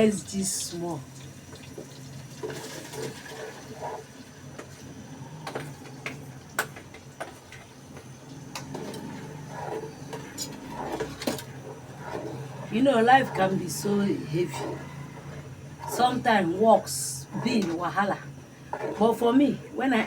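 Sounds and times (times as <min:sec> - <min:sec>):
steady low hum: 0:03.8 - 0:20.0.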